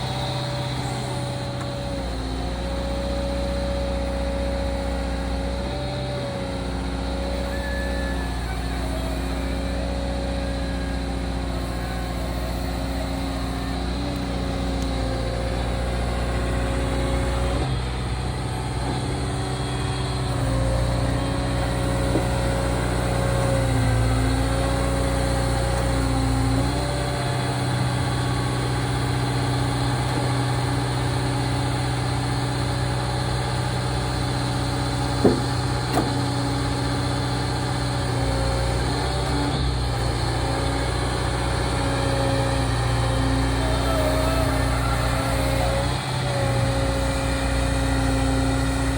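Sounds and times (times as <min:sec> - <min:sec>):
excavator engine whining: 0:00.0 - 0:48.9
sharp knocks: 0:35.2 - 0:36.3.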